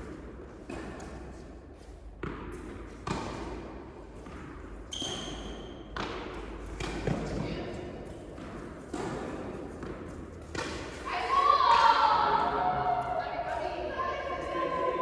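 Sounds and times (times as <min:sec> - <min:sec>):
ball bouncing on indoor court: 0:00.0 - 0:01.4, 0:02.1 - 0:15.0
tennis ball struck by rackets: 0:02.2 - 0:07.4.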